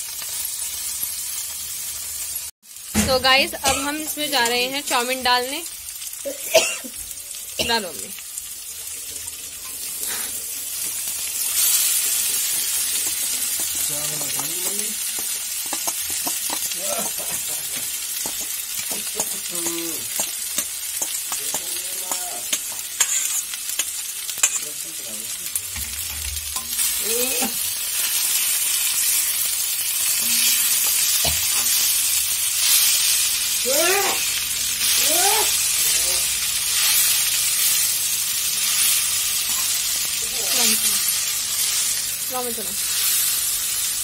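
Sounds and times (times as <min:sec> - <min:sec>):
vegetables sizzling in a pan: 0:00.0 - 0:44.0
spatula scraping and stirring: 0:09.0 - 0:24.8, 0:38.9 - 0:39.8.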